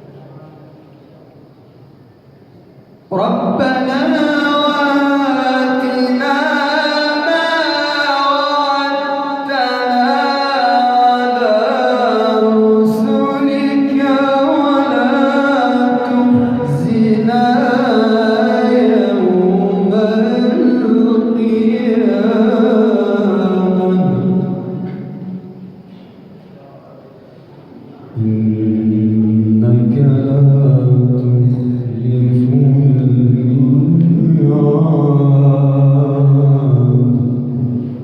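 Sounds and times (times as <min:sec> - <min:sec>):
man chanting melodically: 0:03.0 - 0:25.7, 0:28.0 - 0:38.0.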